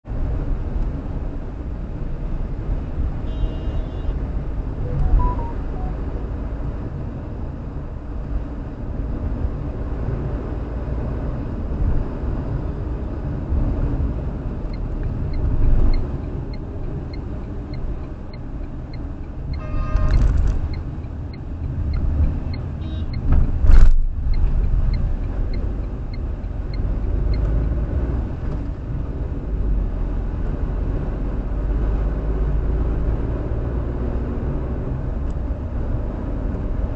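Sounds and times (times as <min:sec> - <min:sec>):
road and traffic rumble: 0:00.0 - 0:36.9
faint regular ticking: 0:14.6 - 0:27.5.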